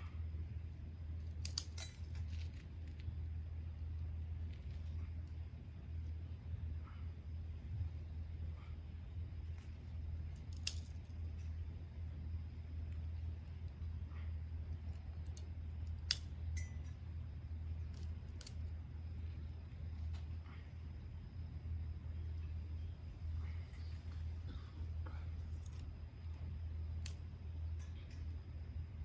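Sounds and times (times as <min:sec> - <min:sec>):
low hum: 0:00.0 - 0:29.0
wood fire crackling and popping: 0:01.3 - 0:03.3, 0:09.4 - 0:20.3, 0:23.7 - 0:28.4.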